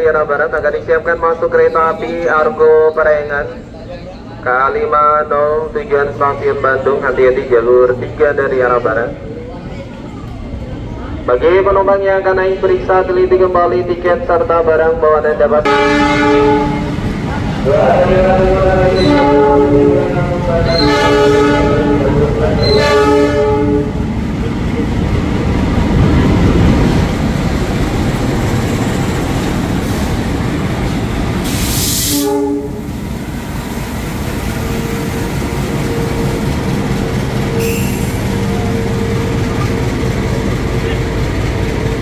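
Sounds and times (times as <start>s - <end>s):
train rumbling past: 0.0s - 42.0s
locomotive horn blasts: 15.6s - 17.0s, 18.8s - 24.0s, 32.0s - 32.9s
sharp hiss of air: 31.4s - 32.3s
high wheel squeal: 37.5s - 39.7s.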